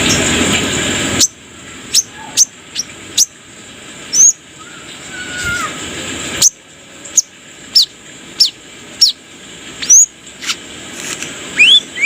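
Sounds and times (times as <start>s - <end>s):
bird calling sharp high chips: 9.8s - 10.6s, 11.6s - 12.0s.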